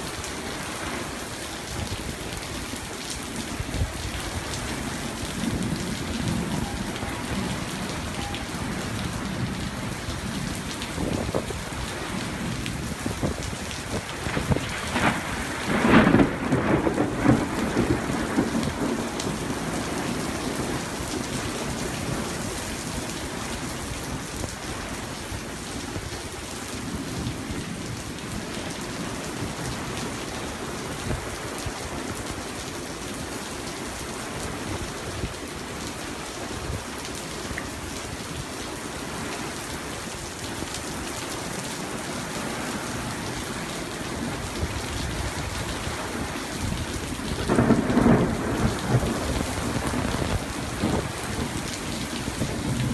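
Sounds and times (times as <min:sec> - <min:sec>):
steady rain falling: 0:00.0 - 0:52.9
loud thunderclap: 0:14.0 - 0:19.4, 0:47.4 - 0:51.6.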